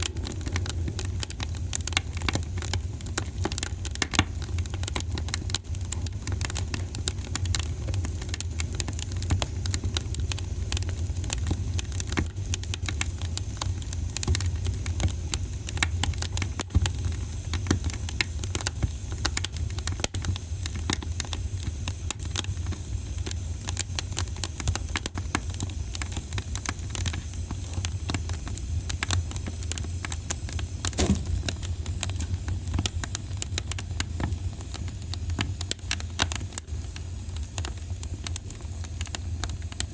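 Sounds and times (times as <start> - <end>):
fireplace fire crackling: 0.0 - 39.9
sharp pops: 30.8 - 33.7.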